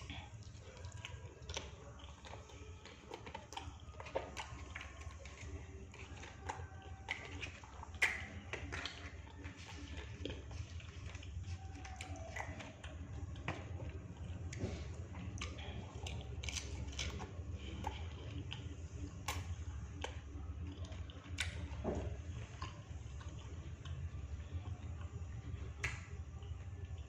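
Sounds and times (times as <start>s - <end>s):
person chewing food: 0.0s - 27.0s
steady low hum: 0.0s - 27.0s.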